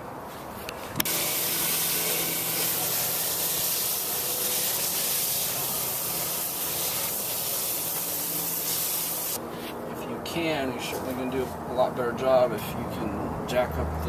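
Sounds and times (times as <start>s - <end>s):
hose spraying water: 1.0s - 9.4s.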